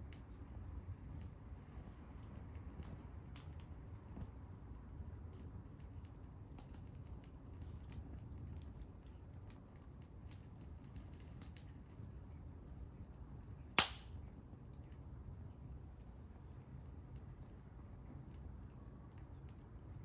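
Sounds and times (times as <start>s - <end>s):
wood fire crackling: 0.0s - 20.0s
fire pops: 2.2s - 4.7s, 13.6s - 15.0s.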